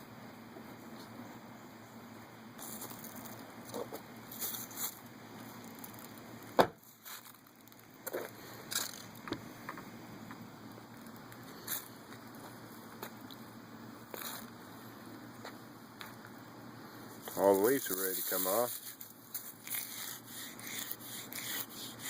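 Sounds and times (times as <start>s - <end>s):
dried stalk rustling and crackling: 2.6s - 9.3s, 17.2s - 22.0s.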